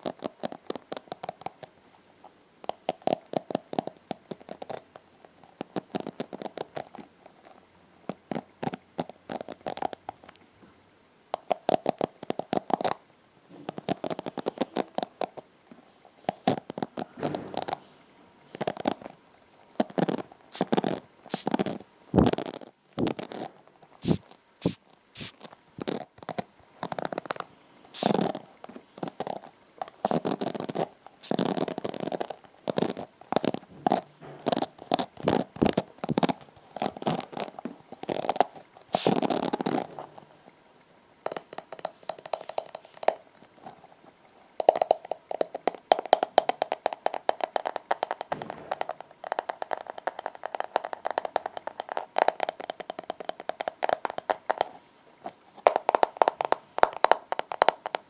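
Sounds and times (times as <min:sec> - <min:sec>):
hairbrush bristles scratching: 0:20.6 - 0:21.6, 0:24.0 - 0:25.4, 0:28.0 - 0:28.2, 0:39.0 - 0:39.2.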